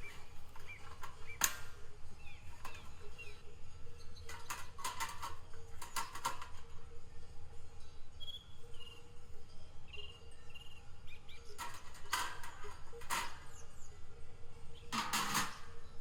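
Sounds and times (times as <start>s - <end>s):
small bird chirping: 9.9s - 11.6s.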